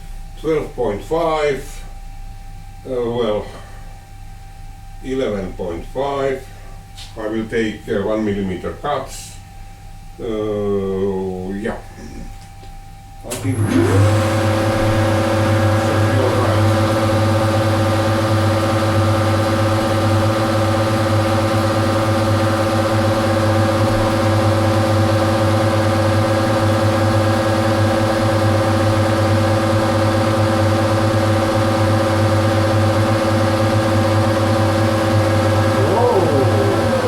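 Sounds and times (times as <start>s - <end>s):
metal lathe running: 13.6s - 37.0s
whining tones: 34.2s - 37.0s.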